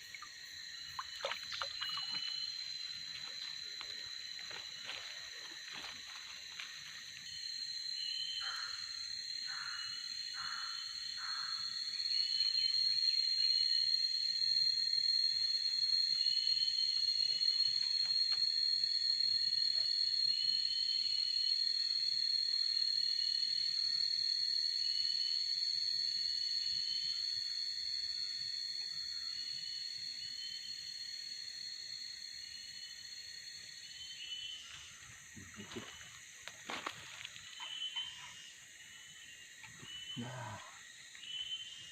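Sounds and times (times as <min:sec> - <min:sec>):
insect chirps: 0:00.0 - 0:41.9
insect high-pitched drone: 0:00.0 - 0:41.9.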